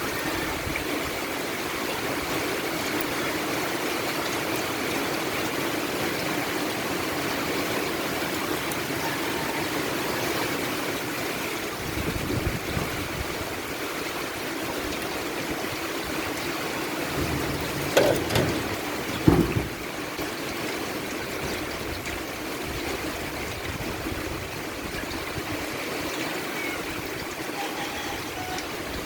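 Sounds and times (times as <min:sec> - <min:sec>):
steady rain hissing: 0:00.0 - 0:29.0
sharp knocks: 0:17.1 - 0:20.0.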